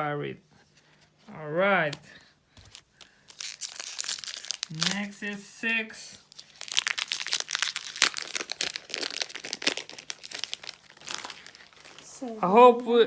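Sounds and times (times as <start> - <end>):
plastic foil wrapper crinkling: 2.6 - 5.6, 6.2 - 13.0.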